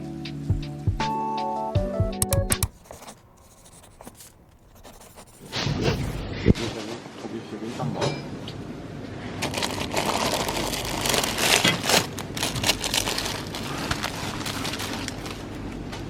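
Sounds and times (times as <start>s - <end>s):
small clicks and knocks: 2.2s - 2.8s
packaging rustling and crinkling: 9.4s - 16.0s.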